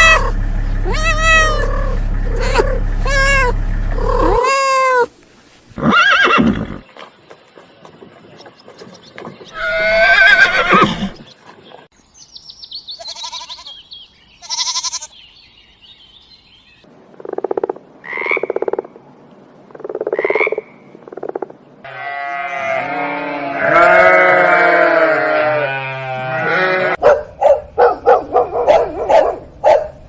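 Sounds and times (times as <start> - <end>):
pulsed croaking calls: 0.0 - 4.9
animals bleating: 0.0 - 5.1, 13.0 - 13.8, 14.4 - 15.2, 21.8 - 27.0
horse whinnying: 0.0 - 5.1, 5.8 - 6.8, 9.6 - 11.2.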